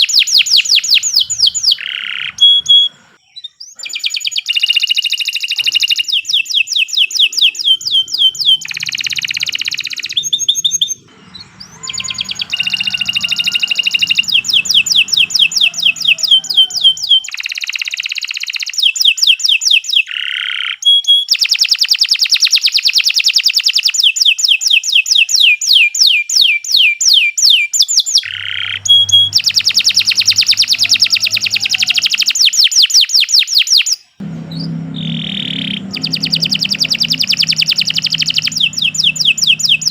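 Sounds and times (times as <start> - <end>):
canary singing trills: 0.0 - 17.9, 28.2 - 32.6.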